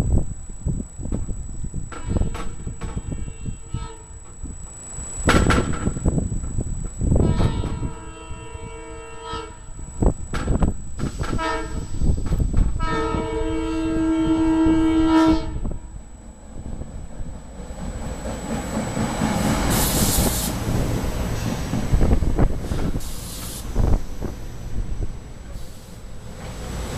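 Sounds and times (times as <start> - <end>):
approaching train rumble: 0.0 - 26.9
train air horn blasts: 1.9 - 15.9.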